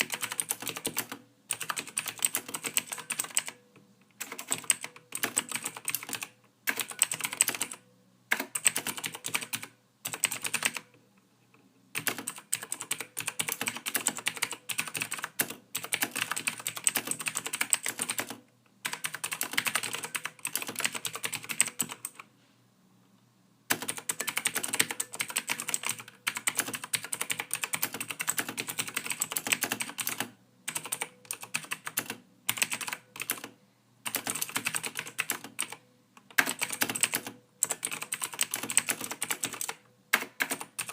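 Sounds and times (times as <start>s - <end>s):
keyboard typing: 0.0s - 22.3s, 23.7s - 40.9s.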